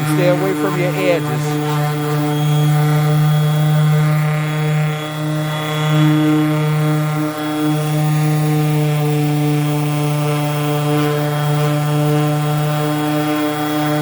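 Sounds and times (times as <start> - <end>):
motor humming steadily: 0.0 - 14.0.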